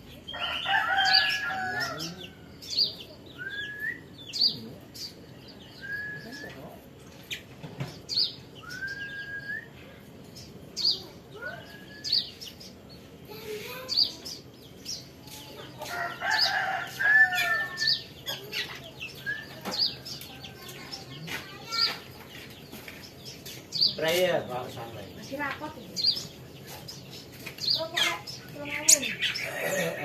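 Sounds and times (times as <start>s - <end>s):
bird chirping: 0.0s - 30.0s
rooster crowing: 0.3s - 2.5s, 15.8s - 18.0s.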